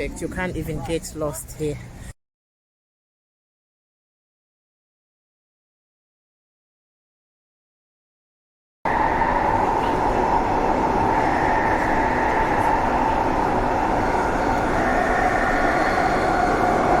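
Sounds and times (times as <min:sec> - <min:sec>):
passenger train running: 0:08.9 - 0:17.0
train whine: 0:08.9 - 0:17.0.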